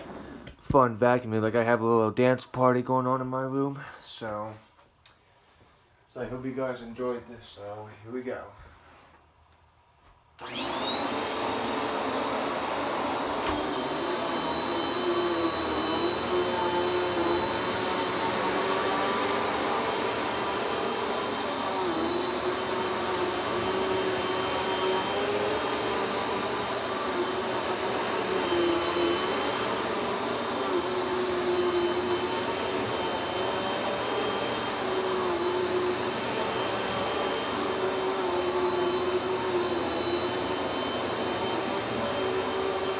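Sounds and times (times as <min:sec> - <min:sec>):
vacuum cleaner motor whine: 0:00.0 - 0:00.6, 0:10.4 - 0:42.9.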